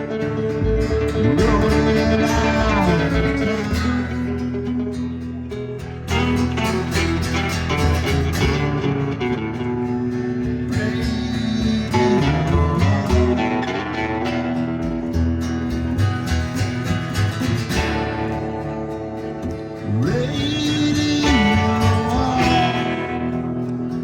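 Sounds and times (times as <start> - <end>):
electric guitar: 0.0 - 24.0
live band instrumental: 0.0 - 24.0.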